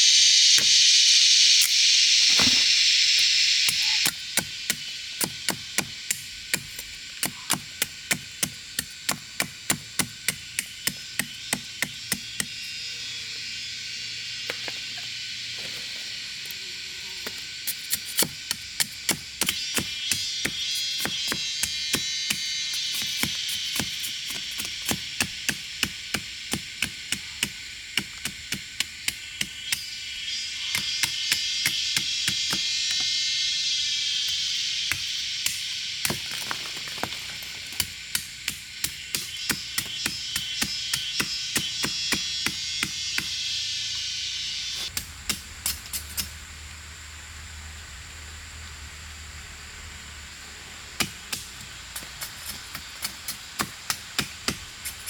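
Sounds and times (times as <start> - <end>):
steady high hiss: 0.0 - 55.0
chopping strikes on wood: 3.8 - 12.6, 51.0 - 54.7.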